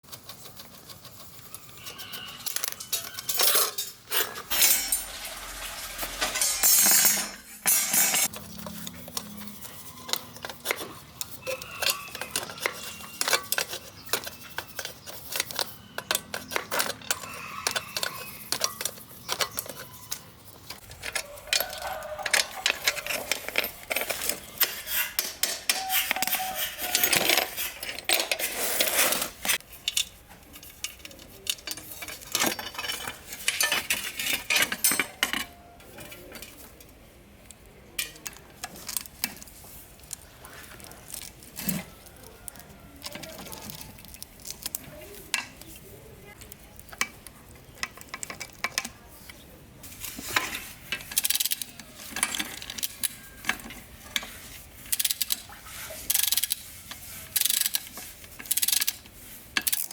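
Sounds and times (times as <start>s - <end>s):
metal bicycle parts clinking: 1.5s - 36.8s, 49.8s - 59.9s.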